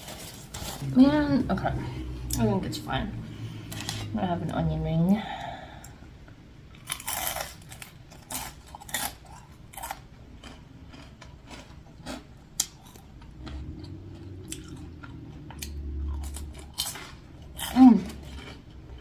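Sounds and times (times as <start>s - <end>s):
low steady hum: 0.0s - 19.0s
crunchy chewing of onion ring: 6.7s - 19.0s.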